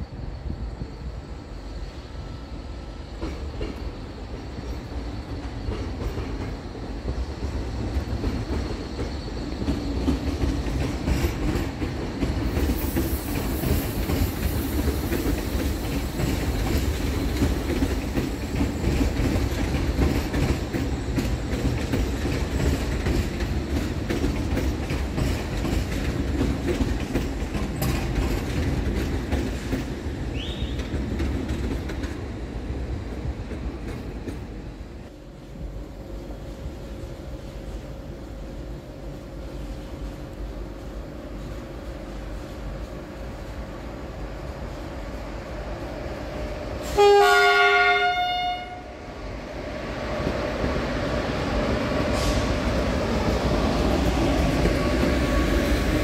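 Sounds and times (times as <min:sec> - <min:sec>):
train passing with low rumble: 0:00.0 - 0:56.0
wheels clicking over rail joints: 0:05.4 - 0:32.2.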